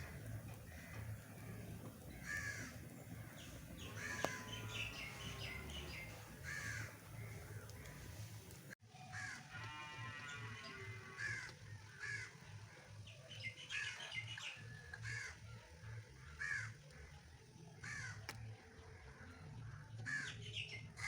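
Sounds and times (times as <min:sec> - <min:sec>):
bird calling harshly: 0:00.0 - 0:08.3
steady low rumble: 0:00.0 - 0:08.8.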